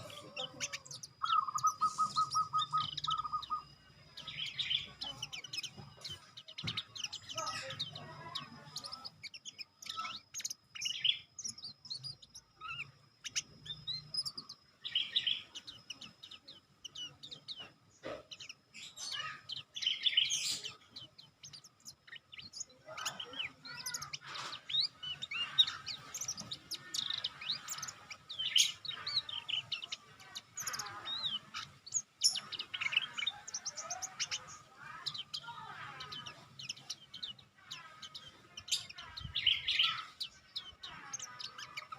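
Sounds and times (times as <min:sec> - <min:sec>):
songbird chirping and trilling: 0:00.0 - 0:41.9.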